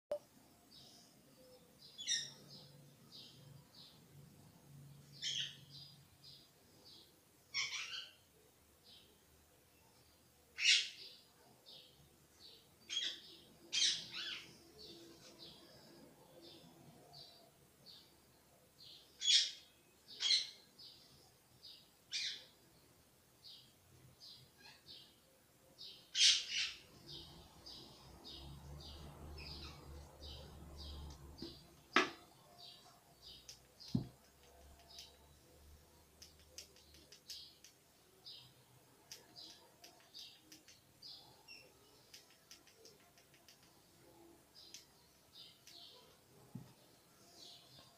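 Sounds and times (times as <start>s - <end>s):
bird chirping: 0.1s - 47.9s.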